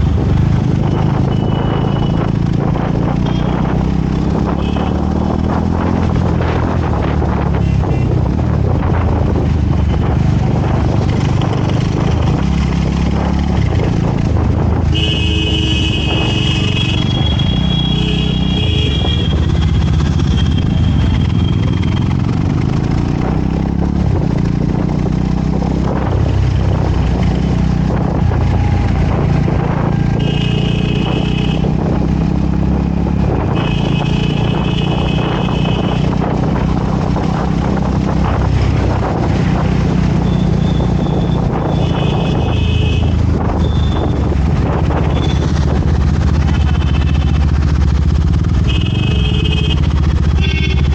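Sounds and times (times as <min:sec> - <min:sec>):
motorcycle engine running: 0:00.0 - 0:50.9
vehicle horn honking: 0:14.9 - 0:19.5, 0:30.2 - 0:31.7, 0:33.6 - 0:36.1, 0:41.7 - 0:44.0, 0:48.6 - 0:50.9.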